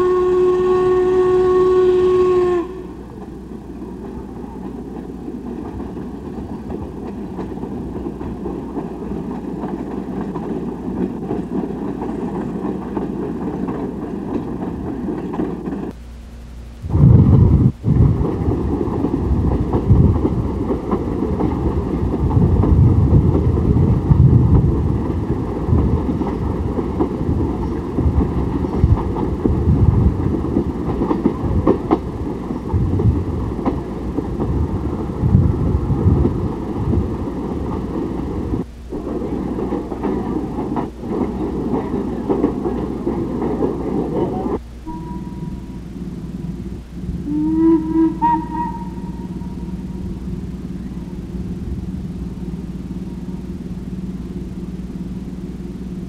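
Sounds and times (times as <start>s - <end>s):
train rumbling along track: 0.0s - 56.0s
wheel clicks over rails: 36.0s - 44.6s.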